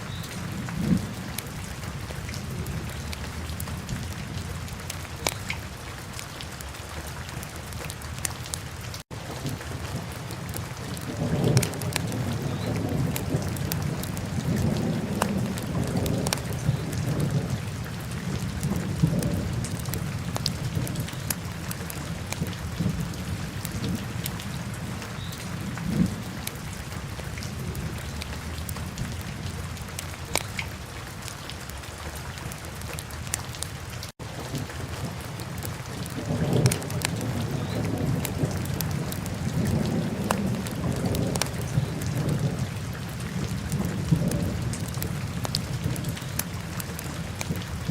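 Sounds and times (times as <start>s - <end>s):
fire crackles and pops: 4.9s - 5.6s, 35.5s - 41.9s, 43.7s - 47.9s.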